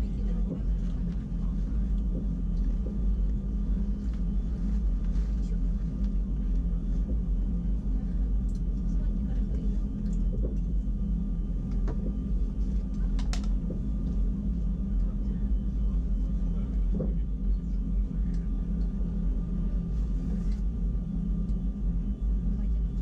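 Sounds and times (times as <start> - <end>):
electric train rumbling: 0.0 - 23.0.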